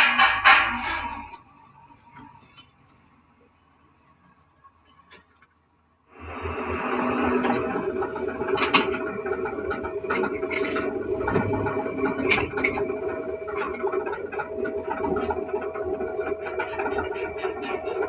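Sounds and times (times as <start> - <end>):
metal lathe humming: 6.2 - 18.0
scraping of machining: 6.2 - 18.0.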